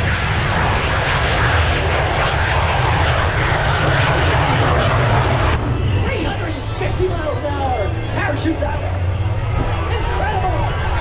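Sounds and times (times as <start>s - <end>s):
jet engine roaring: 0.0s - 11.0s.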